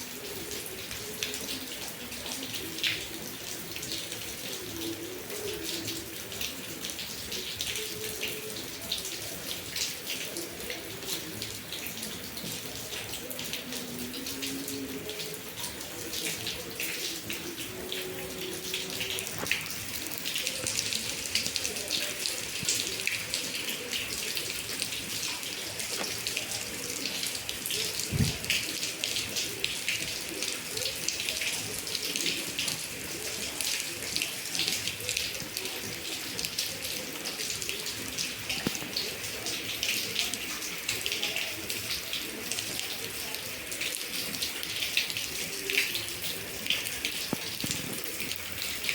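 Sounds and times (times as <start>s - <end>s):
running water: 0.0s - 48.9s
heavy rain splashing: 9.8s - 48.9s
low thump: 28.1s - 28.5s.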